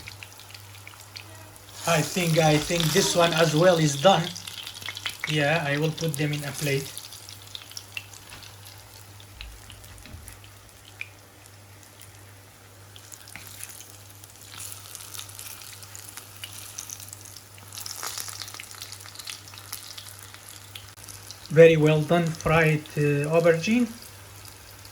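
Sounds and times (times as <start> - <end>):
aubergine sizzling in hot oil: 0.0 - 24.9.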